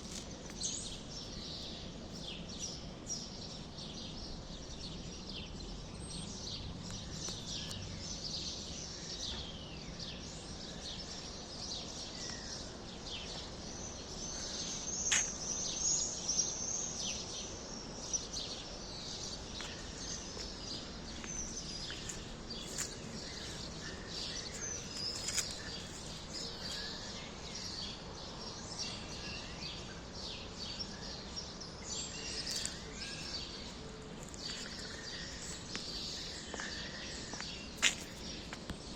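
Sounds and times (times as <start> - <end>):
low background noise: 0.0 - 38.9
small birds chirping: 0.0 - 38.9.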